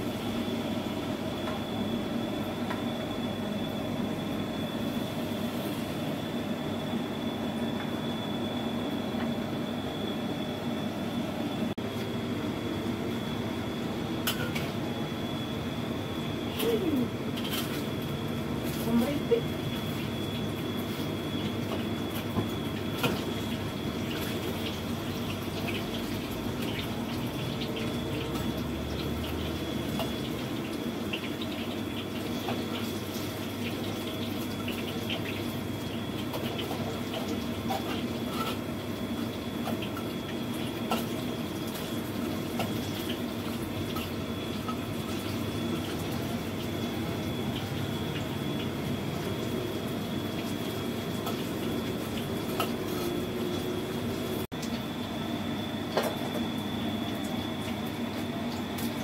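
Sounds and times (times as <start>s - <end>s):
fritters sizzling in oil: 16.6s - 54.8s.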